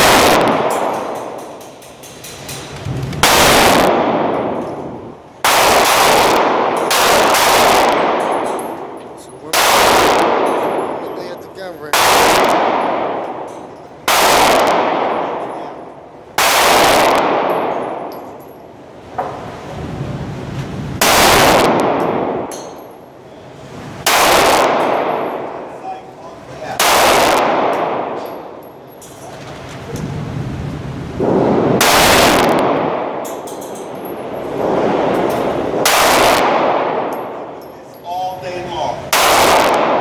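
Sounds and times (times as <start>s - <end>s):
faint gunshots: 0.0s - 0.9s, 3.2s - 4.3s, 5.4s - 8.2s, 9.5s - 11.1s, 11.9s - 13.3s, 14.1s - 15.8s, 16.4s - 18.1s, 21.0s - 22.5s, 24.0s - 25.6s, 26.8s - 28.2s, 31.2s - 33.2s, 34.6s - 37.1s, 39.1s - 40.0s
echoing gunshots: 0.0s - 1.6s, 3.2s - 18.8s, 21.0s - 22.6s, 24.0s - 25.8s, 26.6s - 28.6s, 31.2s - 37.6s, 39.0s - 40.0s.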